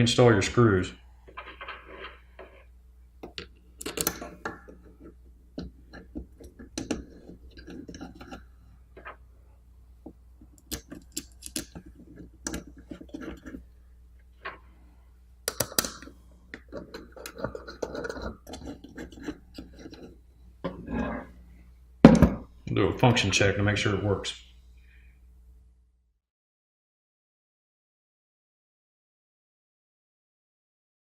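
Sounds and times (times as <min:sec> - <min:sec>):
screwdriver clicks and scrapes: 0:03.2 - 0:08.5, 0:10.5 - 0:13.6, 0:15.5 - 0:20.2.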